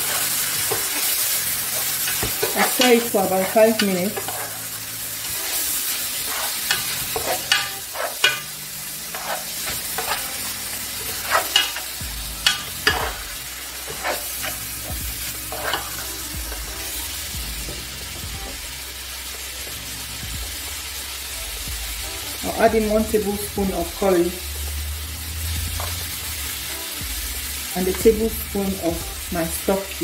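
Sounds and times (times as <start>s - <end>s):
meat and onions sizzling in oil: 0.0s - 30.0s
spoon scraping a metal pot: 1.7s - 4.6s, 6.2s - 10.4s, 11.0s - 13.2s, 13.9s - 14.6s, 15.5s - 16.1s.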